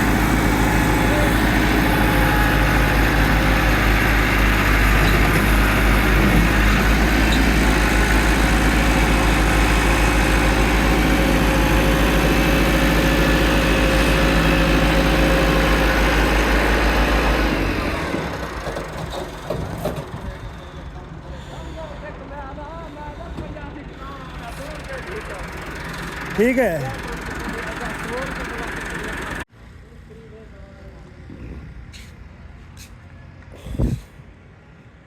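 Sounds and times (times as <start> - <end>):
tractor engine rumbling: 0.0 - 34.4.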